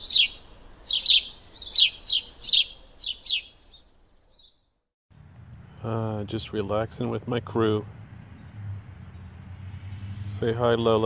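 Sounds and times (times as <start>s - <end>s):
small bird chirping: 0.0s - 4.8s.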